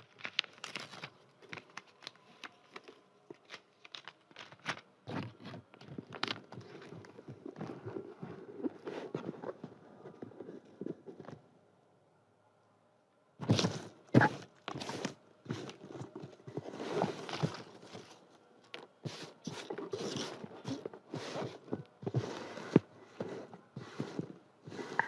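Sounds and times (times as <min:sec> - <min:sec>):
paper rustling and crinkling: 0:00.0 - 0:11.4, 0:13.4 - 0:25.0.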